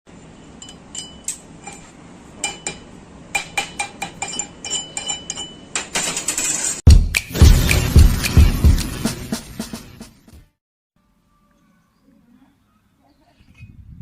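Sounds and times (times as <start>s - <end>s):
metal clinking taps on steel: 0.6s - 5.9s.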